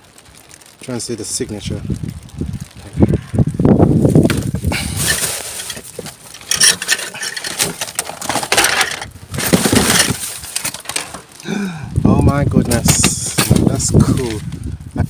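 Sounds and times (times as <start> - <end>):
rummaging through bin: 4.2 - 11.3, 12.2 - 14.4.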